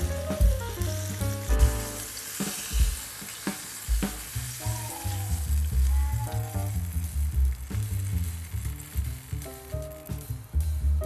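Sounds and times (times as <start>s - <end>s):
background music with bass beat: 0.0s - 2.1s
fish sizzling in oil: 0.0s - 10.9s.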